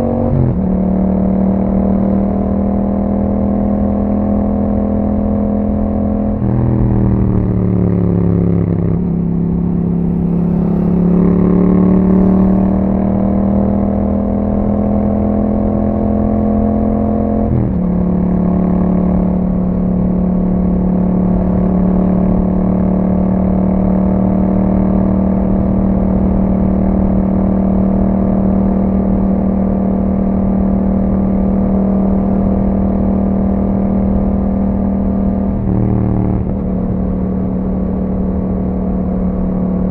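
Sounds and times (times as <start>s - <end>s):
motorcycle engine revving: 0.0s - 19.4s, 32.4s - 39.9s.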